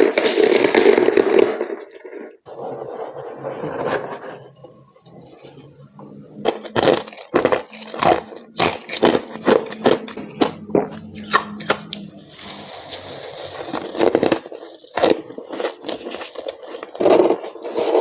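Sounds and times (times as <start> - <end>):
person chewing crunchy frost: 6.3 - 18.0.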